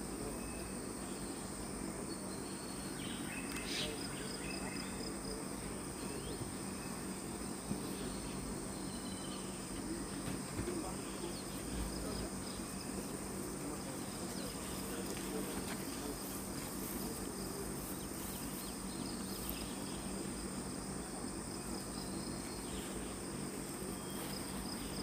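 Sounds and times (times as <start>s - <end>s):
insects shrilling drone: 0.0s - 25.0s
pulsing insect chirp: 0.0s - 25.0s.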